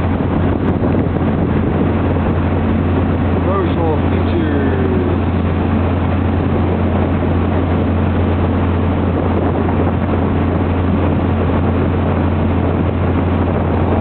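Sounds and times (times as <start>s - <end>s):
boat motor droning: 0.0s - 14.0s
water rushing: 0.0s - 14.0s.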